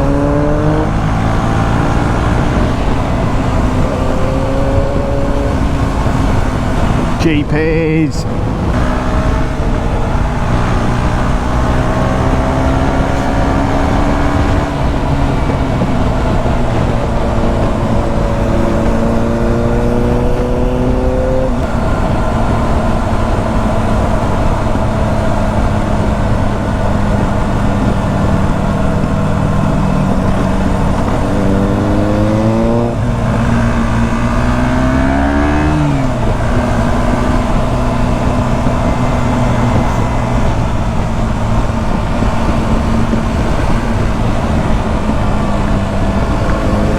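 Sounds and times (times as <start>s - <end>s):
motorcycle engine revving: 0.0s - 46.9s
wind and road noise: 0.0s - 46.9s.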